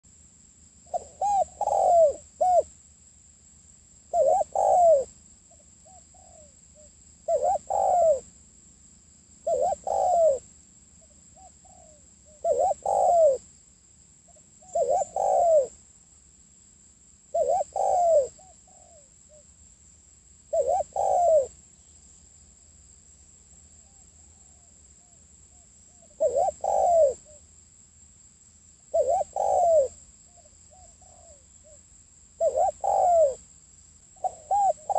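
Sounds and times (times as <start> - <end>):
dove cooing: 0.9 - 2.7, 4.1 - 8.3, 9.4 - 10.5, 11.3 - 13.5, 14.6 - 15.8, 17.3 - 19.4, 20.5 - 21.6, 25.9 - 27.4, 28.9 - 31.8, 32.4 - 33.4, 34.2 - 34.9.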